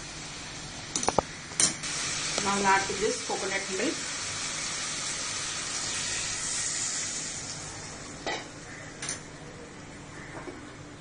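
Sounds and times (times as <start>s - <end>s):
food sizzling in a hot pan: 0.0s - 8.7s.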